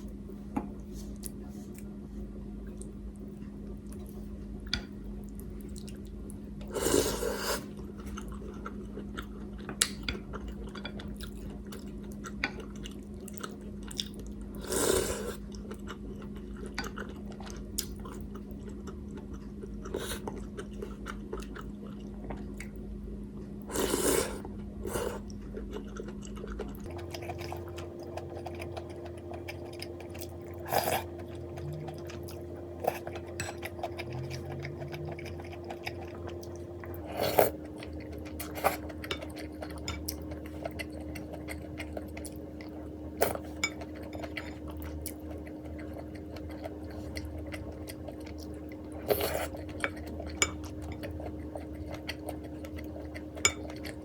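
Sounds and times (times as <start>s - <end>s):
steady low hum: 0.0s - 54.0s
person chewing: 23.6s - 54.0s.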